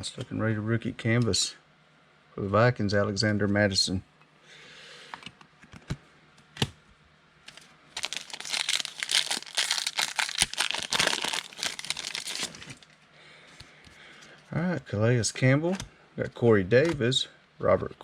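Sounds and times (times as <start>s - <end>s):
wrapper torn and crinkled: 8.0s - 13.0s.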